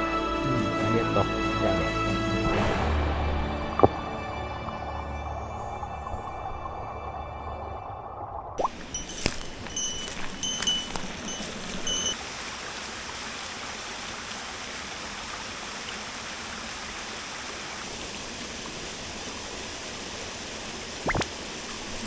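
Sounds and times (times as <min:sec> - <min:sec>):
mountain stream flowing: 0:08.6 - 0:22.0
short high tones: 0:08.9 - 0:12.2.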